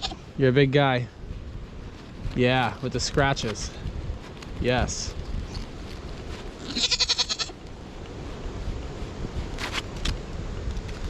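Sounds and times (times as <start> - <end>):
goat bleating: 0.0 - 0.3, 6.6 - 7.6
low wind rumble: 0.0 - 11.0.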